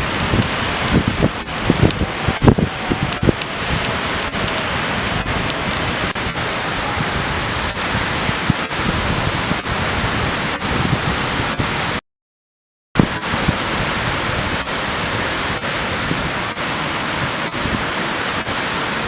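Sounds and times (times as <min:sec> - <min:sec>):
surf at the shoreline: 0:00.0 - 0:12.0, 0:13.0 - 0:19.0
wind: 0:00.0 - 0:12.0, 0:13.0 - 0:19.0.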